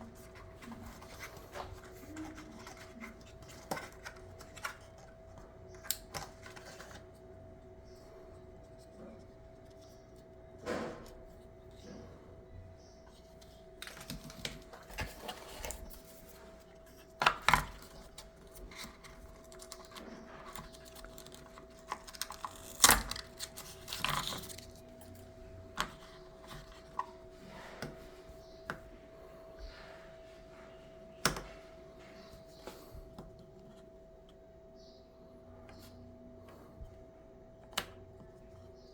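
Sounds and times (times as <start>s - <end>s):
faint steady hum: 0.0s - 38.9s
plastic packaging clicks and rustles: 13.8s - 27.2s.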